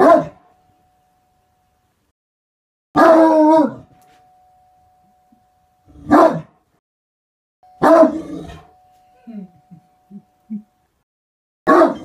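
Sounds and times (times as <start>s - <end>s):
dog barking: 0.0s - 0.4s, 3.0s - 3.8s, 6.0s - 6.5s, 7.8s - 8.6s, 11.7s - 12.0s
faint steady hum: 7.6s - 11.0s.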